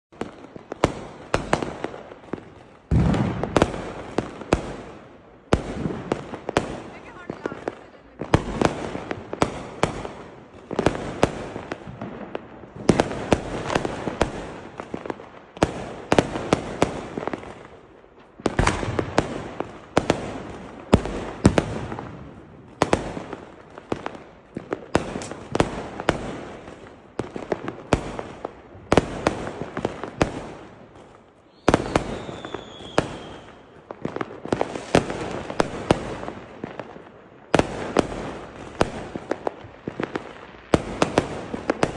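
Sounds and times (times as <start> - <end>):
firecrackers banging and crackling: 0.1 - 41.9.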